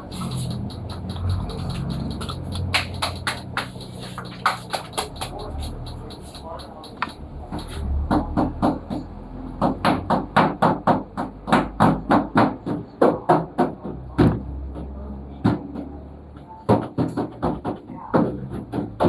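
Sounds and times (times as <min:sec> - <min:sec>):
rapid sharp knocks: 0:00.0 - 0:14.4.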